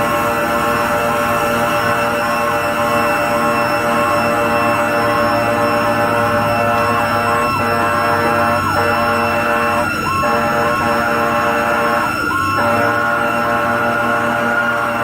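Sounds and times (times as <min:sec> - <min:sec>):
fire truck siren yelping: 0:00.0 - 0:15.0
high whine: 0:00.0 - 0:15.0
truck engine hum: 0:00.0 - 0:15.0.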